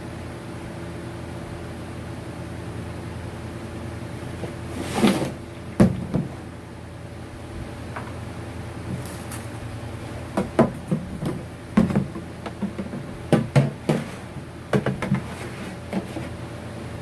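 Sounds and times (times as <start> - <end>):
steady low hum: 0.0 - 17.0
hard objects knocking together: 10.4 - 15.3.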